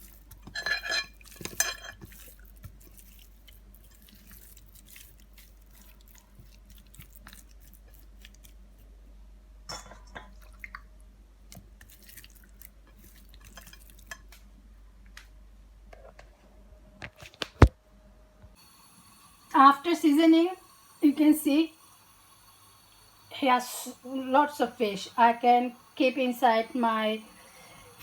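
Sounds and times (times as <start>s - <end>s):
crinkly rustles: 1.2s - 8.9s.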